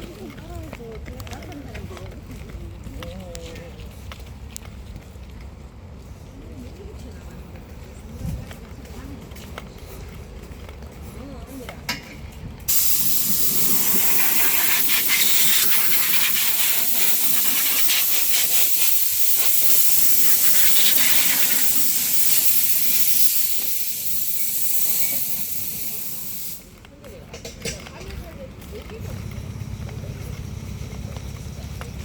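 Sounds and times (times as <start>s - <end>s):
pressurised spray hissing: 12.7s - 26.8s, 29.0s - 32.0s.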